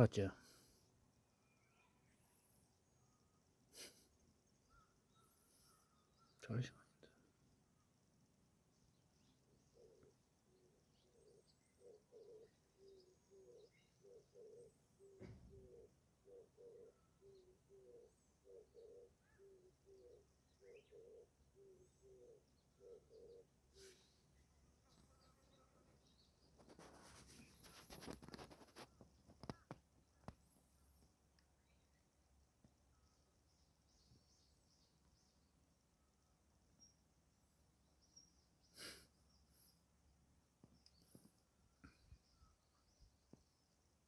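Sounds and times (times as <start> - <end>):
birds chirping: 0.0 - 8.0, 8.7 - 43.9
dove cooing: 11.1 - 23.5
faint rustling: 24.9 - 30.6.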